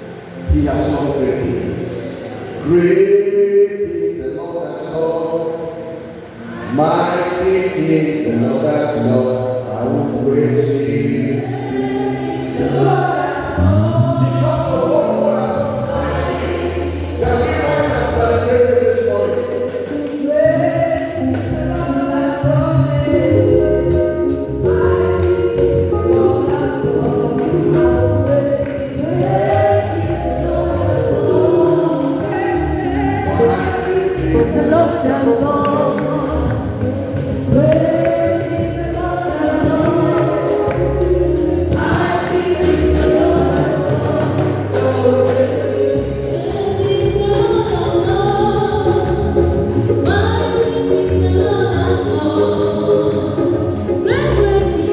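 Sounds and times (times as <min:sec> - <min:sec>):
choir singing gospel: 0:00.0 - 0:54.9
bass line: 0:08.3 - 0:54.9.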